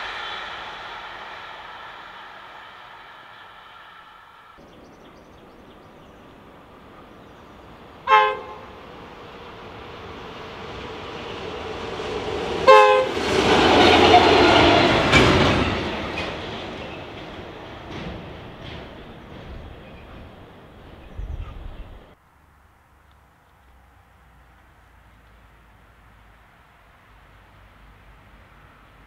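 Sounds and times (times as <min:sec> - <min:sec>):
train wheel rumble: 0:00.0 - 0:22.2
locomotive horn blasts: 0:08.0 - 0:08.8, 0:12.6 - 0:13.2.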